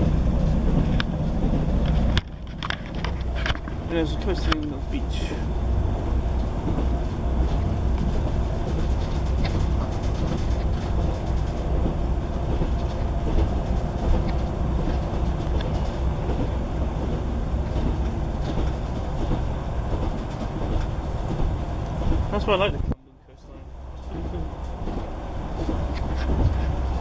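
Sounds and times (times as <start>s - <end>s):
train wheels rumbling on rail: 0.0s - 27.0s
faint track clicks: 1.8s - 4.8s.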